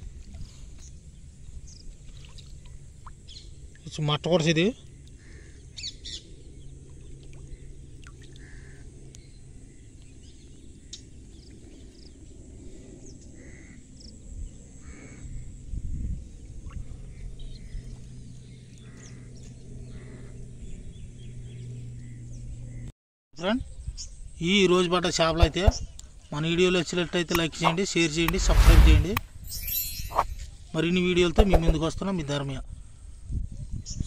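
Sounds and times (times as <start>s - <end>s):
short bird chirps: 28.4s - 30.4s.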